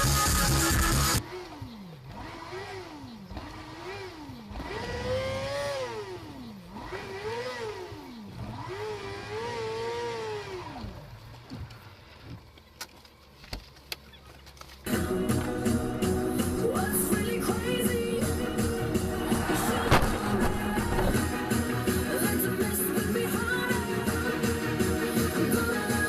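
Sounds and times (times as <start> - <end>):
music: 0.0 - 1.2, 14.9 - 26.0
car engine revving: 0.0 - 11.4, 14.9 - 26.0.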